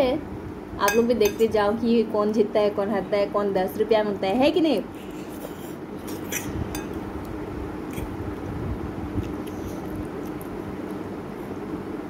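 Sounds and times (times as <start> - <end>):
steady low hum: 0.0 - 12.0
people chewing noodles: 4.9 - 11.6.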